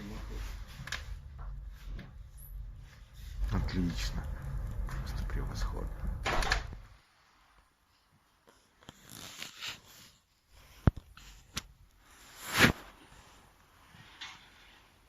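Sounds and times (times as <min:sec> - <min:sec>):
wood fire crackling: 0:00.0 - 0:07.2.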